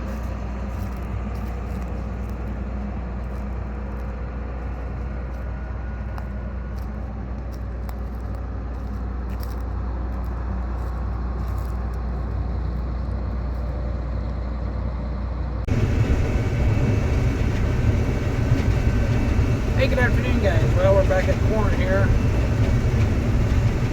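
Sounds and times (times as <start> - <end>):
rough engine sound: 0.0 - 23.9
vehicle engine droning: 9.9 - 23.9.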